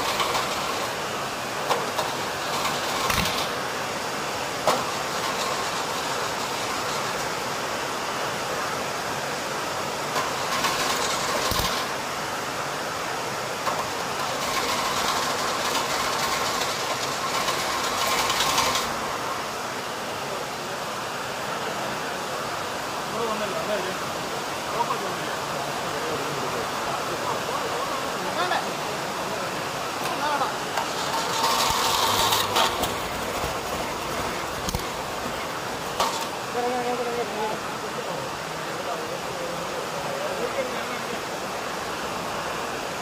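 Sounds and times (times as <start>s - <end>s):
engine cranking: 0.0s - 1.0s, 1.6s - 3.6s, 4.7s - 7.2s, 10.1s - 12.0s, 13.6s - 19.1s, 30.0s - 36.4s.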